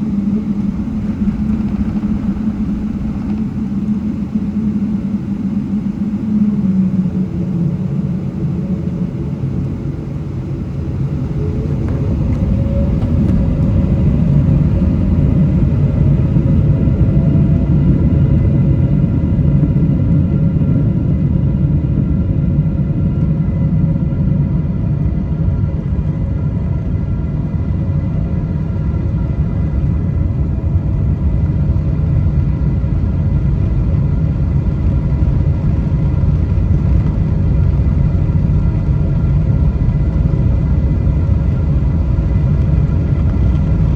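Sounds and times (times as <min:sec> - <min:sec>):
faint engine tone: 0:00.0 - 0:27.2
airplane cabin rumble: 0:00.0 - 0:43.9.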